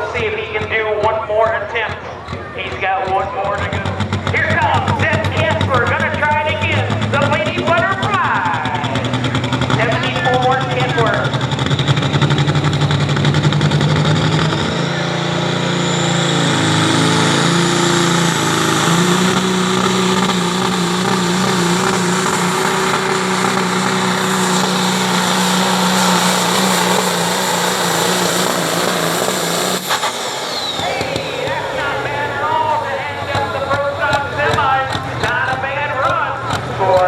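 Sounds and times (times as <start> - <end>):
diesel truck engine under load: 0.0 - 37.0
rising whine: 9.8 - 34.1.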